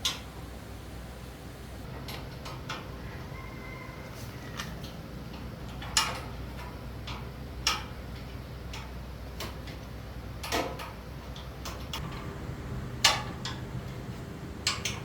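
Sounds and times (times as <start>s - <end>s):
low hum: 12.0s - 15.0s.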